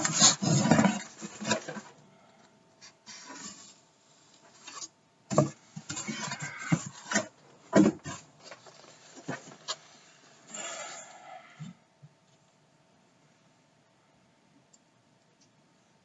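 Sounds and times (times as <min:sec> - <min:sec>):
knocks of hard plastic parts: 0:05.3 - 0:05.6.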